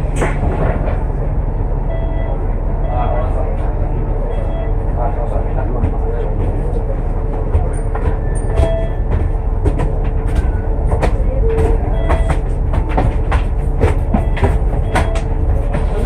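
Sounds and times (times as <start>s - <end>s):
bus engine rumble: 0.0s - 16.0s
body rattles and knocks: 7.3s - 16.0s.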